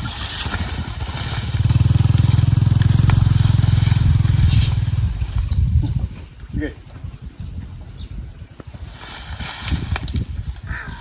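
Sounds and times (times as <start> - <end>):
small engine running: 0.4 - 5.4.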